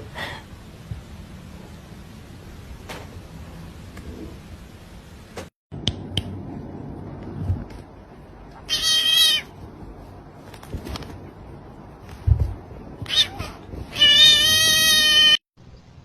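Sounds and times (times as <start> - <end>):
cat meowing: 8.6 - 9.5, 13.0 - 15.4.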